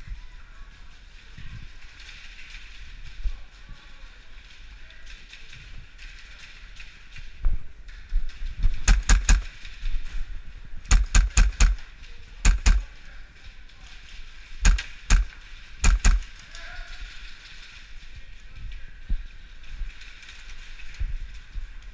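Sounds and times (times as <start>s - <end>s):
airsoft guns firing: 8.7s - 9.8s, 10.8s - 13.0s, 14.6s - 16.6s.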